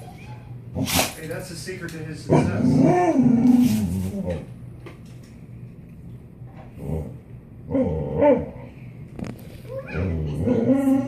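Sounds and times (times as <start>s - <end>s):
dog moaning calls: 2.3s - 4.4s, 9.8s - 11.0s.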